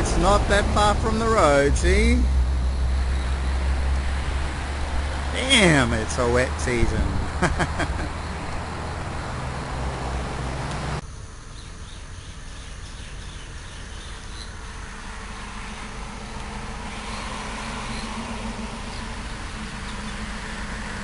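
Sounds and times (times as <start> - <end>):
low steady hum: 9.2 - 21.0
loud low rumble: 14.8 - 21.0.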